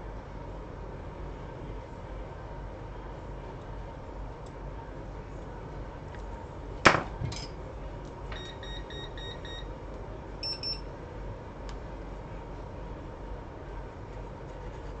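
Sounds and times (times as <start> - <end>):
steady low hum: 0.0 - 15.0
short electronic beeps: 8.4 - 9.6, 10.4 - 10.8.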